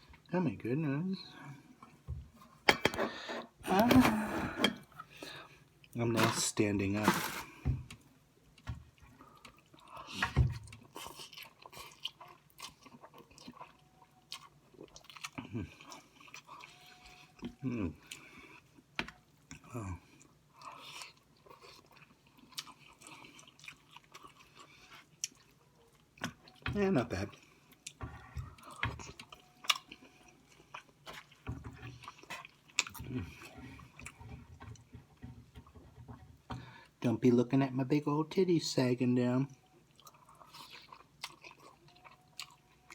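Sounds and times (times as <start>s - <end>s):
person chewing food: 7.0s - 37.0s, 39.6s - 42.9s.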